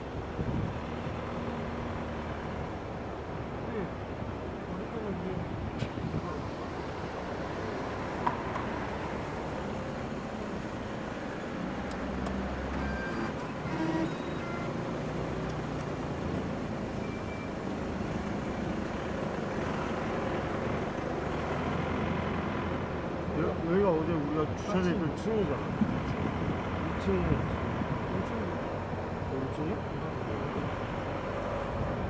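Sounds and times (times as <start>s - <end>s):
traffic noise: 0.0s - 32.0s
short electronic beeps: 12.8s - 14.8s, 17.0s - 17.6s.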